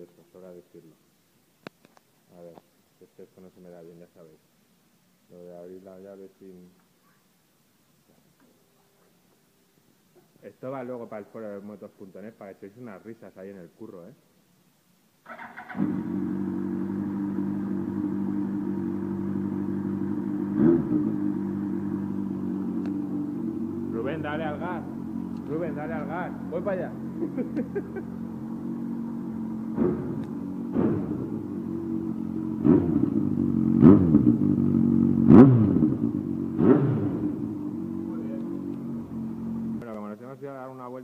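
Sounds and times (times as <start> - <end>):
motorcycle engine idling: 15.3 - 39.8.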